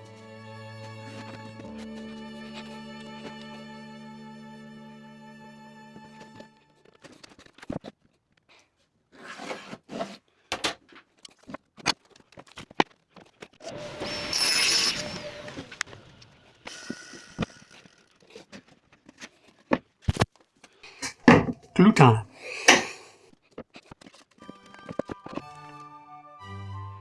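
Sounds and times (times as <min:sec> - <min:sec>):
power tool burst: 0:13.9 - 0:15.6
wooden boards knocking: 0:21.0 - 0:21.8.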